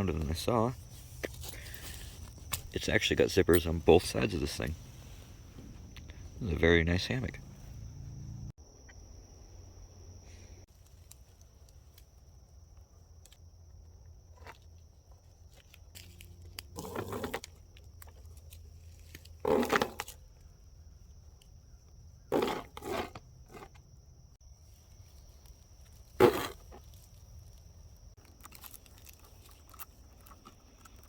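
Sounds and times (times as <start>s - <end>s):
rustling and crunching of bags: 0.3s - 2.8s.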